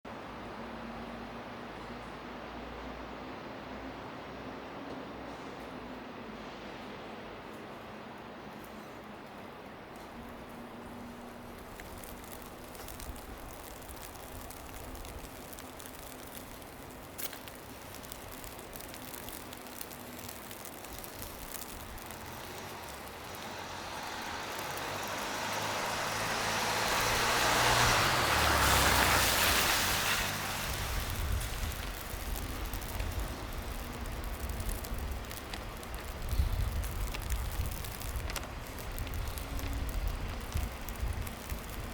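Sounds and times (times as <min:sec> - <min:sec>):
street ambience: 0:00.1 - 0:41.9
vehicle passing: 0:21.9 - 0:37.2.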